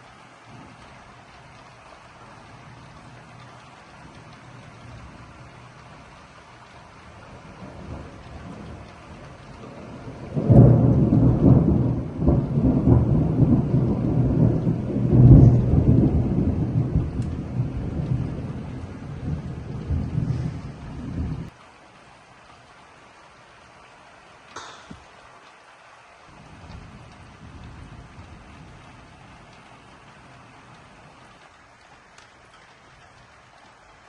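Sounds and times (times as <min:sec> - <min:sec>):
rain hiss: 0:00.0 - 0:34.0
thunder crack and rumble: 0:00.4 - 0:21.6, 0:26.3 - 0:31.5.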